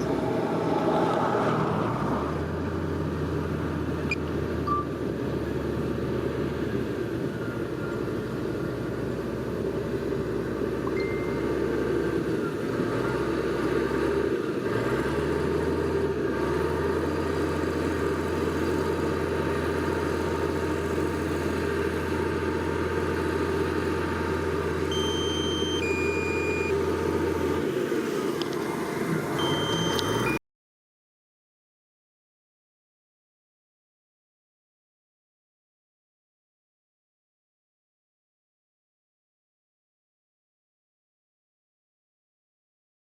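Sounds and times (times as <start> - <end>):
diesel engine droning: 0.0 - 30.4
short high beeps: 4.7 - 4.9, 10.8 - 11.6, 24.9 - 26.8, 29.4 - 30.4.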